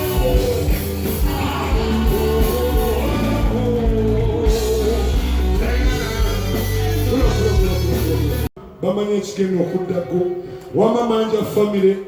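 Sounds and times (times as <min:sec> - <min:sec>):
heavy bass beat: 0:00.0 - 0:08.5
person singing: 0:00.0 - 0:08.5.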